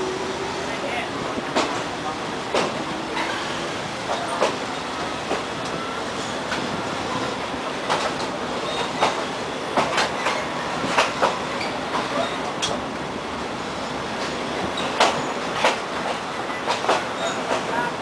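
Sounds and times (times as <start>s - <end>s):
train running gear rumble: 0.0s - 18.0s
train wheels clacking over rail joints: 1.4s - 4.6s, 7.8s - 12.8s, 14.2s - 17.8s.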